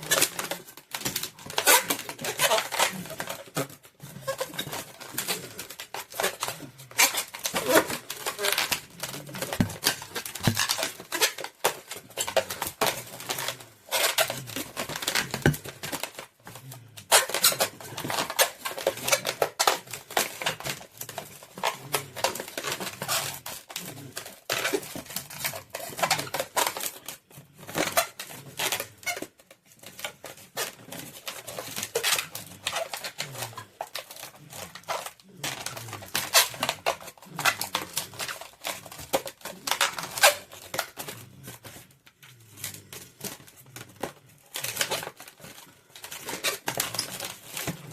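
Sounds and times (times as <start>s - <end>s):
rubber balloons squeaking and rubbing: 0.0s - 47.9s.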